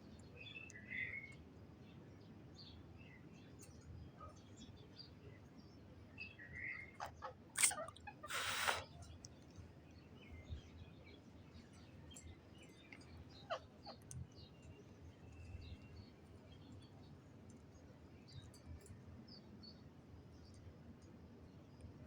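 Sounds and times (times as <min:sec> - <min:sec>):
parrot chirping and squawking: 0:07.1 - 0:08.8.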